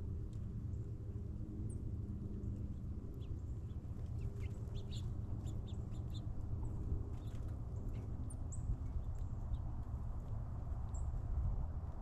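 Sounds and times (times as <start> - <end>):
small birds chirping: 3.2 - 6.4.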